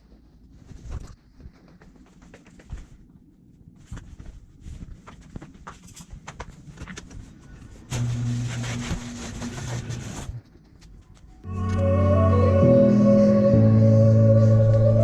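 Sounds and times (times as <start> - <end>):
music: 11.5 - 15.0.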